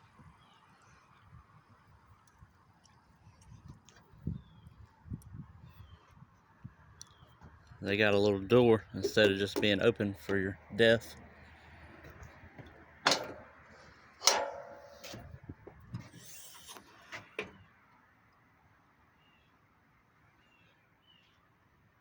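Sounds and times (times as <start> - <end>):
door latch clicks and clunks: 12.6 - 13.5
brief metallic ring: 14.2 - 15.1.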